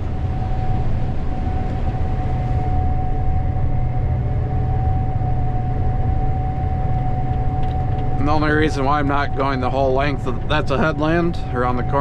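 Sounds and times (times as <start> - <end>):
combine harvester drone: 0.0 - 12.0
constant high machine whine: 0.0 - 12.0.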